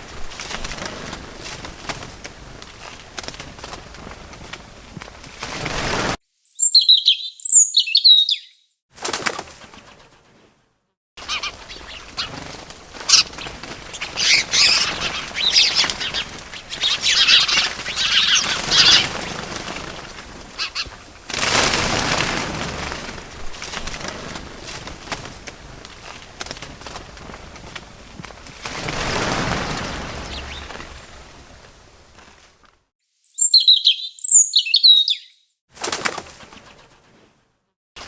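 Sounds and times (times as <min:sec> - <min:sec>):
background rustle: 0:00.0 - 0:06.2, 0:11.2 - 0:32.9
fluttering wingbeats: 0:00.0 - 0:06.2, 0:09.0 - 0:10.6, 0:11.2 - 0:32.8, 0:35.8 - 0:37.4
small birds chirping: 0:06.3 - 0:08.7, 0:11.2 - 0:21.2, 0:28.8 - 0:31.6, 0:33.1 - 0:35.5.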